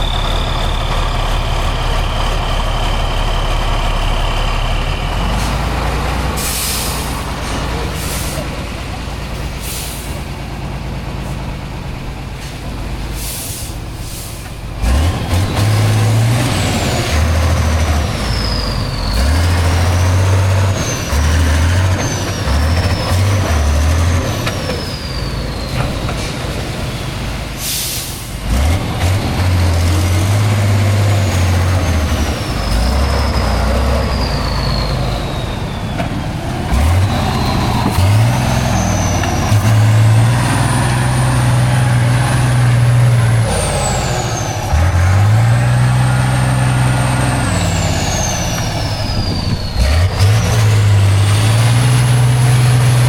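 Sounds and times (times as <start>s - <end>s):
diesel engine revving: 0.0s - 53.0s
air hisses: 13.2s - 14.5s.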